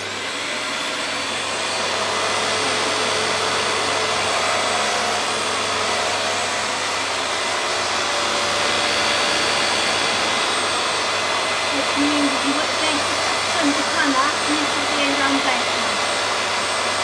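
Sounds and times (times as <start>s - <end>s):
upright vacuum cleaner running: 0.0s - 17.0s.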